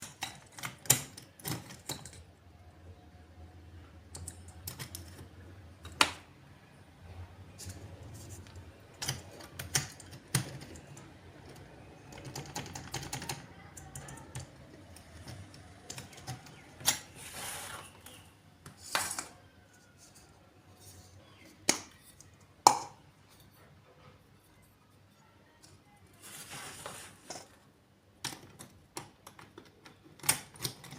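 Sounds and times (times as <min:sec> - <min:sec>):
small hard objects clicking and tapping: 0:07.6 - 0:17.1, 0:21.2 - 0:23.0.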